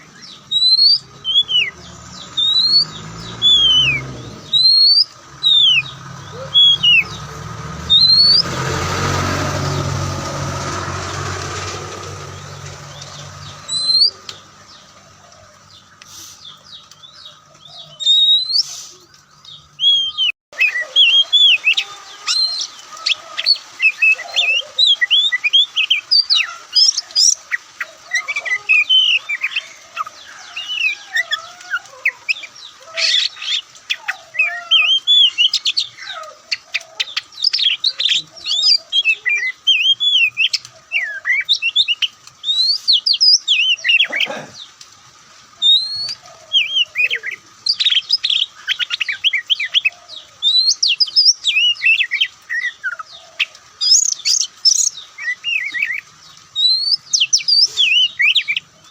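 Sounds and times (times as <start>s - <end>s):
bird singing whistled notes: 0.0s - 8.5s, 12.5s - 14.4s, 17.8s - 18.8s, 19.5s - 22.8s, 45.6s - 52.9s, 56.6s - 58.7s
low engine hum: 0.0s - 16.0s.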